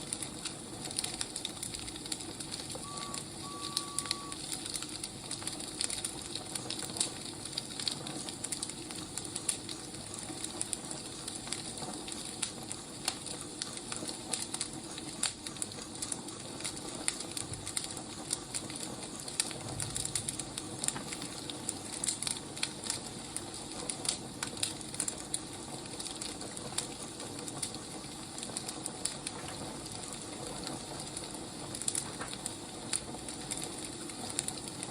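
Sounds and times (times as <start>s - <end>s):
wood fire crackling: 0.0s - 34.9s
brief high tone: 2.8s - 4.4s.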